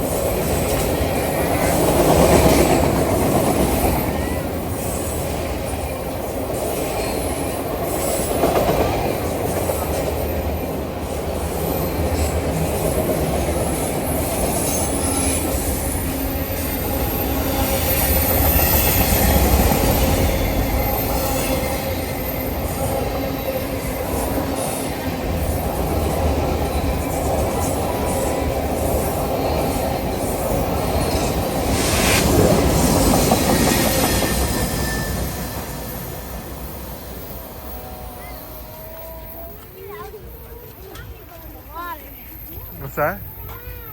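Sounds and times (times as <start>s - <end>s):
train wheels rumbling on rails: 0.0s - 43.9s
high-pitched wheel squeal: 32.0s - 36.3s.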